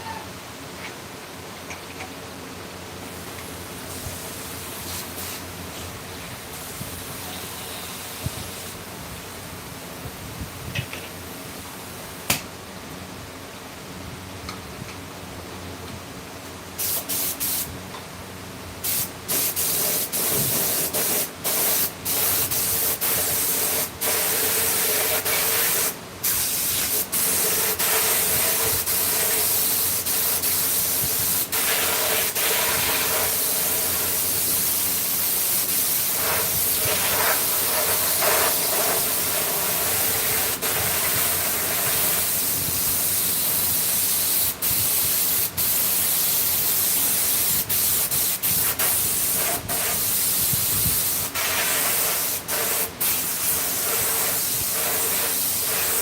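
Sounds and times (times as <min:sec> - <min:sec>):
compressed air hissing: 0:16.8 - 0:17.7, 0:18.8 - 0:56.0.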